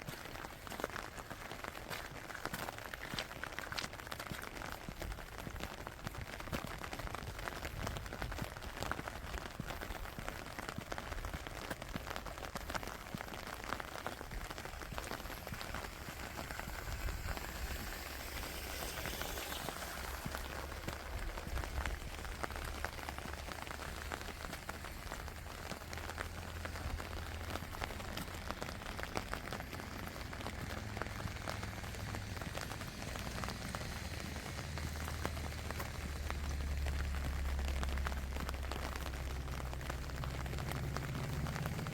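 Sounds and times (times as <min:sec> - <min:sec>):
rain drops ticking on surfaces: 0:00.0 - 0:41.9
rain hiss: 0:00.1 - 0:41.9
low rumble: 0:14.4 - 0:41.9.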